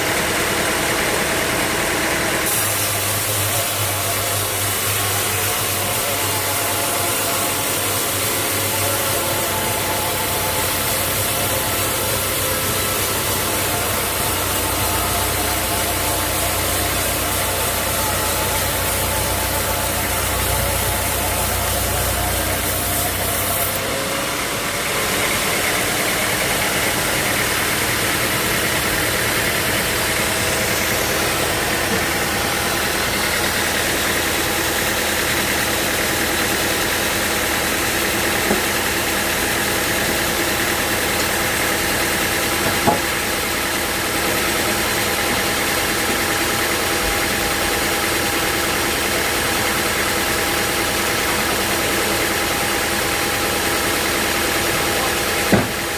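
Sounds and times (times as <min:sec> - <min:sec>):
sawmill machinery running: 0:00.0 - 0:55.9.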